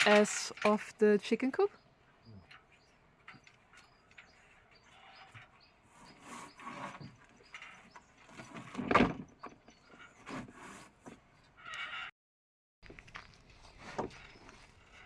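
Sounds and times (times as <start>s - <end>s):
roofing knocks and scraping: 2.5s - 12.0s.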